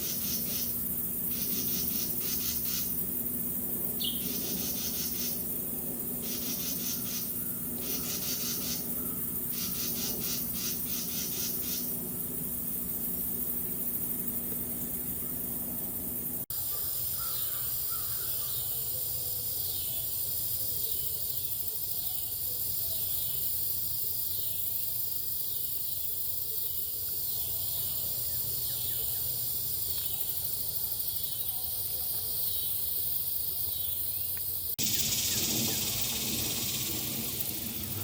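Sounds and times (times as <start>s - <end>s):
high insect buzz: 0.0s - 38.0s
high arching bird call: 6.2s - 12.0s.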